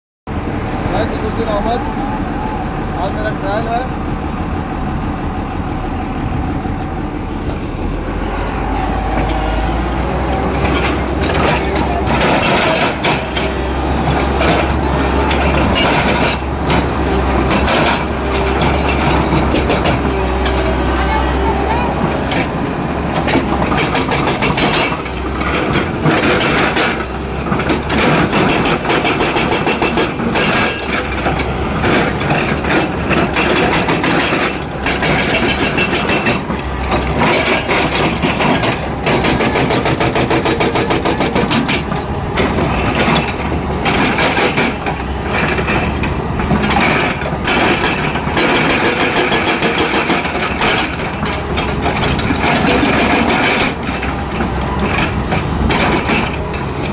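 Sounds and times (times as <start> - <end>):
excavator diesel engine running: 0.3 - 56.9
short rattles and knocks: 10.5 - 20.8, 22.0 - 56.9.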